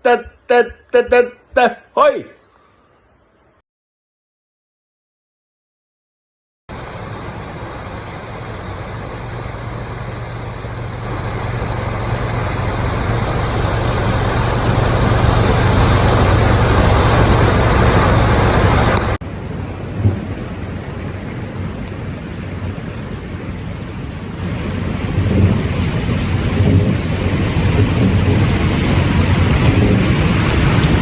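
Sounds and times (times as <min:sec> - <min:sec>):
heavy rain: 0:06.7 - 0:31.0
river rushing roar: 0:06.7 - 0:31.0.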